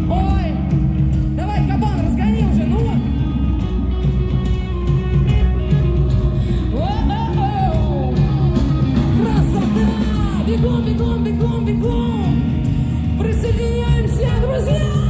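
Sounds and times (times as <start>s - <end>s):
live rock band playing: 0.0s - 15.0s
woman singing: 6.4s - 15.0s.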